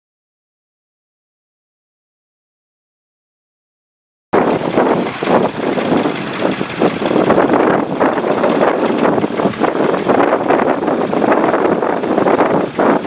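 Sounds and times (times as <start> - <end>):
tractor engine running under load: 4.4 - 13.0.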